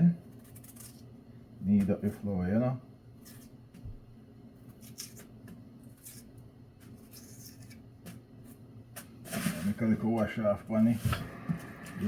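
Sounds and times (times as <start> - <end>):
utensil scraping and clicking on food: 0.2 - 2.0, 4.6 - 9.8.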